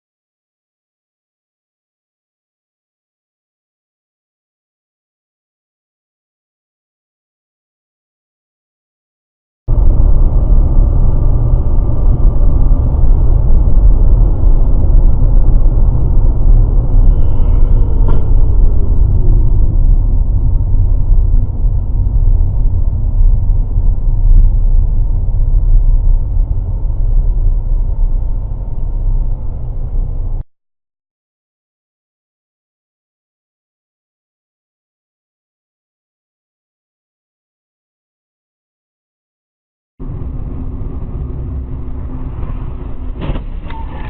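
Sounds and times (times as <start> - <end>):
moving car rumble: 9.7 - 30.5, 40.0 - 44.0.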